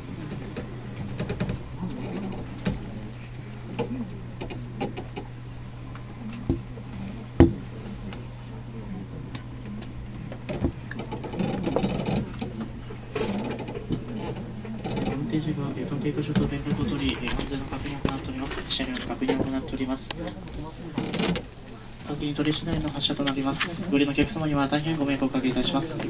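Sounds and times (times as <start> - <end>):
train car low hum: 0.0 - 26.0.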